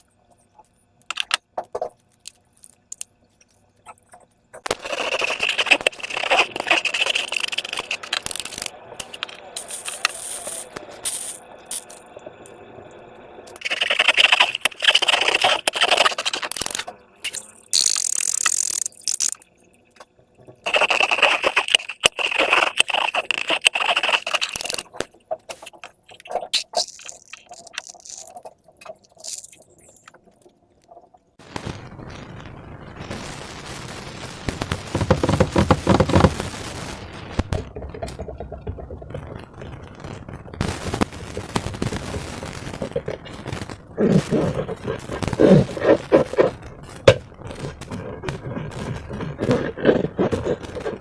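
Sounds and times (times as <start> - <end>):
slime squishing and crackling: 4.6 - 12.0, 13.6 - 19.4, 20.6 - 31.1, 34.5 - 51.0.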